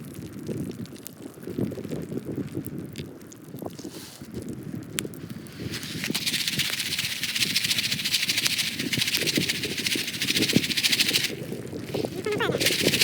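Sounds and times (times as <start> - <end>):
popcorn popping: 5.8 - 13.0.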